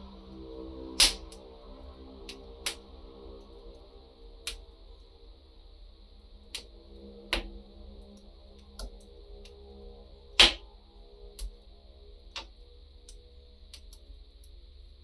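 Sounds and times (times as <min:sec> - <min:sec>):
wood fire crackling: 0:00.0 - 0:01.4.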